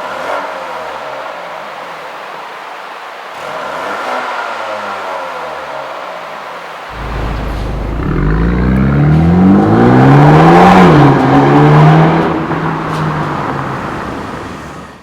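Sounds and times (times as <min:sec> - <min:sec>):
car engine accelerating: 0:06.9 - 0:14.7.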